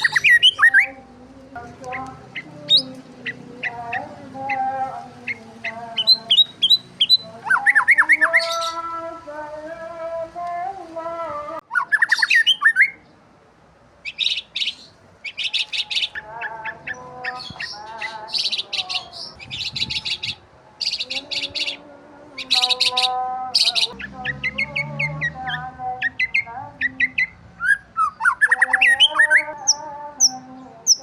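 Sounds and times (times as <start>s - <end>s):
whistled bird notes: 0.0s - 1.0s, 11.7s - 13.0s, 22.4s - 31.0s
birds chirping: 0.0s - 31.0s.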